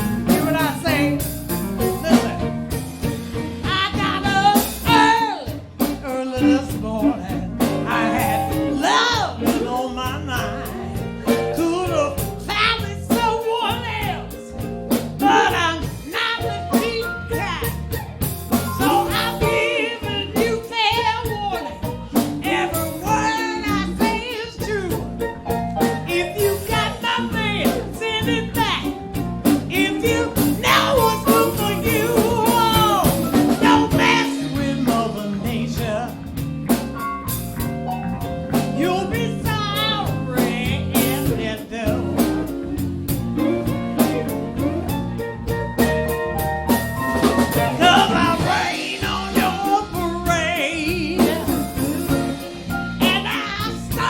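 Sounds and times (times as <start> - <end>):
live band playing: 0.0 - 54.0
person singing with vibrato: 3.6 - 14.6, 15.2 - 17.6, 18.7 - 25.2, 26.1 - 28.9, 29.7 - 36.3, 38.8 - 45.0, 47.6 - 54.0.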